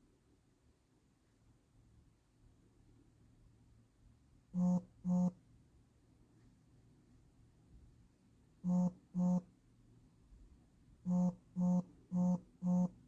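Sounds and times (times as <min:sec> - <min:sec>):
short low buzzy tones: 0:04.6 - 0:05.4, 0:08.6 - 0:09.5, 0:11.0 - 0:13.0.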